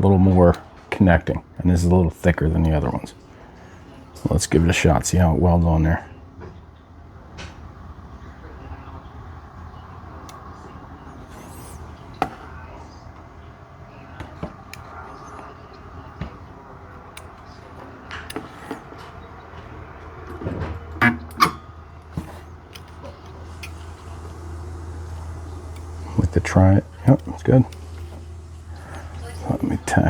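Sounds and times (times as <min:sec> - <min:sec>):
low steady hum: 0:00.0 - 0:30.0
spot welder snapping: 0:19.7 - 0:30.0.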